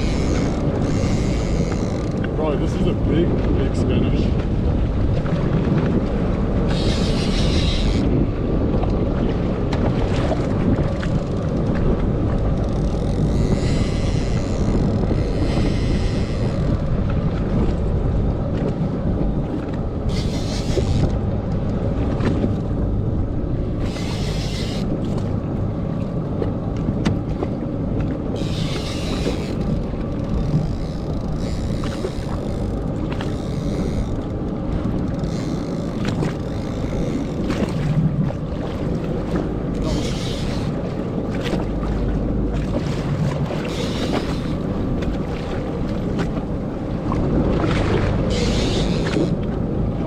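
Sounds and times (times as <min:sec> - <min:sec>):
outboard motor running: 0:00.0 - 0:50.0
wind buffeting microphone: 0:00.0 - 0:50.0.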